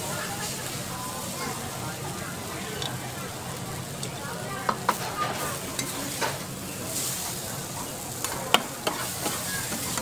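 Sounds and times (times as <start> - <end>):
noodles sizzling on a griddle: 0.0 - 10.0
utensils knocking against griddle: 8.2 - 10.0.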